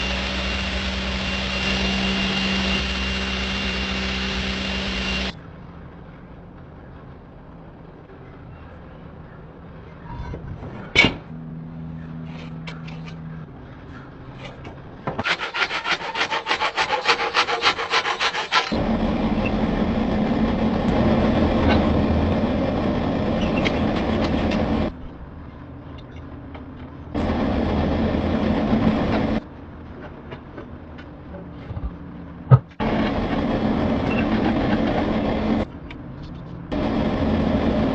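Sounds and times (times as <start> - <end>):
steady grinding noise: 0.0 - 5.4, 14.6 - 25.0, 27.1 - 30.3, 32.8 - 35.7, 36.7 - 37.9
rasping strokes on steel: 15.2 - 18.8.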